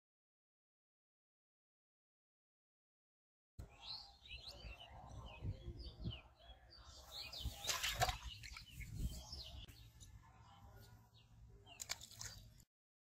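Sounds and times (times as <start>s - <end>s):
small birds chirping: 3.6s - 12.7s.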